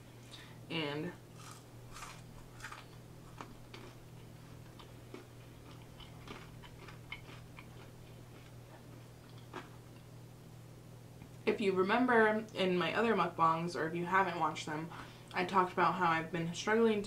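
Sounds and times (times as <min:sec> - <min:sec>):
low steady hum: 0:00.0 - 0:17.0
chewing with mouth clicks: 0:01.4 - 0:10.1.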